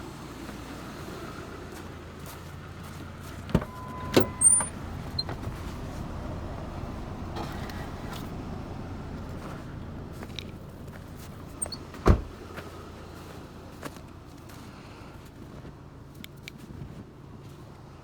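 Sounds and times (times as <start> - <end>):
truck door slamming: 3.5 - 5.6, 11.4 - 12.5.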